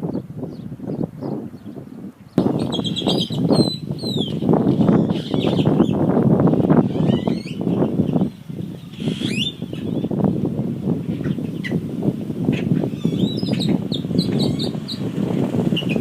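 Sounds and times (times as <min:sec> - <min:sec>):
high bird chirps: 0:00.0 - 0:06.0, 0:06.8 - 0:10.2, 0:12.8 - 0:15.1
rough low bird clamor: 0:00.0 - 0:16.0.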